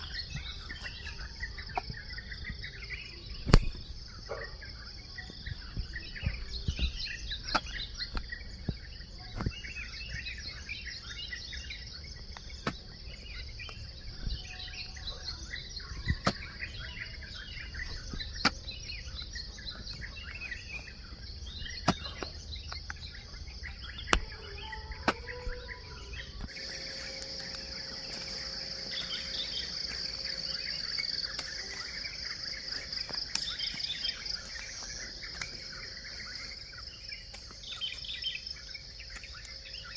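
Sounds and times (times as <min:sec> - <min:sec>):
birds chirping and calling: 0:00.0 - 0:39.9
hoe striking soil: 0:21.7 - 0:22.8
high insect drone: 0:22.4 - 0:39.9.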